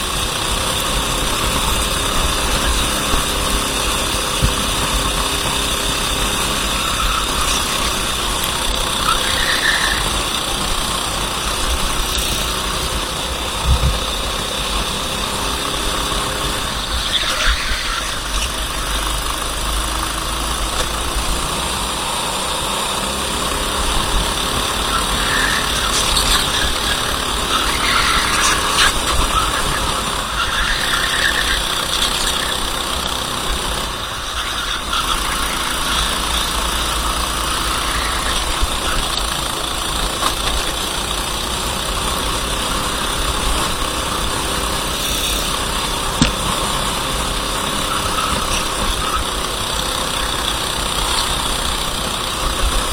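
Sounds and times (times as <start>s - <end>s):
racing kart engine revving: 0.0s - 52.9s
steady rushing noise: 10.0s - 22.6s.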